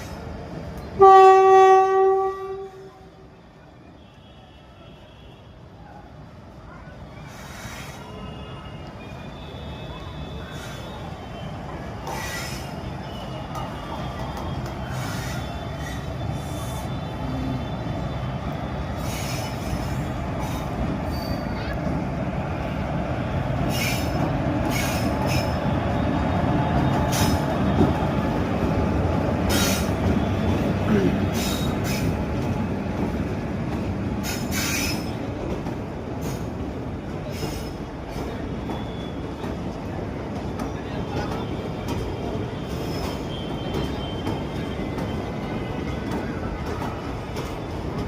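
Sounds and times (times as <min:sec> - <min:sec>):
train wheels rumbling on rail: 0:00.0 - 0:04.0, 0:04.7 - 0:48.0
high wheel squeals: 0:07.3 - 0:21.6, 0:41.4 - 0:47.8
high-pitched wheel squeal: 0:21.1 - 0:21.6.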